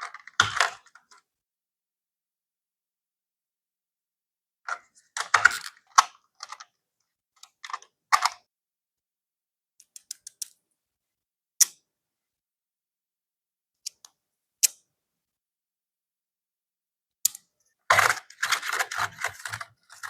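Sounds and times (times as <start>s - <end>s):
hands handling packaging: 17.9s - 20.0s.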